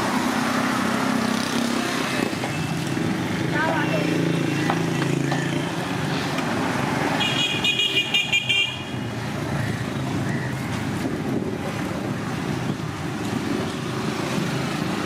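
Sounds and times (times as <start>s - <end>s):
street traffic hum: 0.0s - 15.0s
vehicle horn toots: 7.2s - 8.9s.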